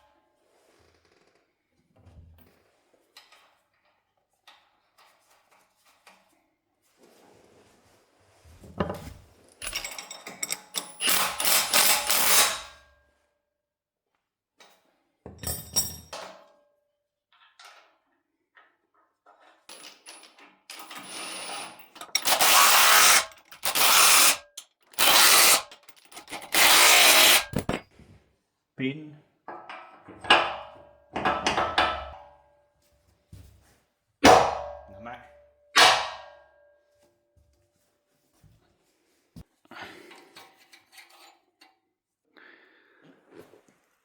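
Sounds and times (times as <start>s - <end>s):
handheld power tool running: 22.2s - 24.4s, 25.0s - 27.7s.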